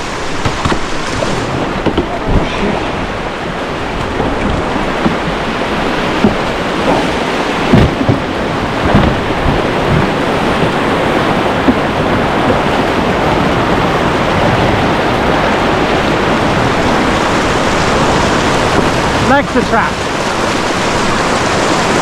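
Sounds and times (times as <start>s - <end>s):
whitewater rushing: 0.0s - 22.0s
heavy thumps: 6.1s - 10.8s.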